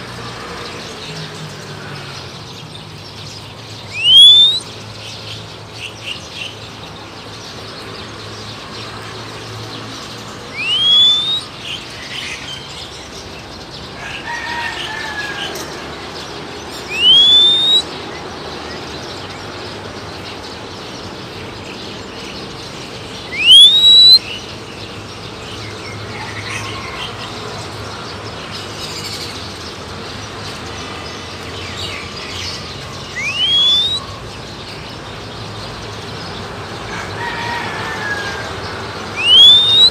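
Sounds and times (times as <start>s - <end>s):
bird chirping: 1.0s - 9.1s, 9.8s - 13.8s, 16.2s - 26.0s, 28.3s - 36.4s, 39.1s - 39.9s
loud upward gliding whistle: 3.9s - 4.6s, 10.5s - 11.5s, 16.9s - 17.9s, 23.3s - 24.2s, 33.2s - 34.0s, 39.2s - 39.9s.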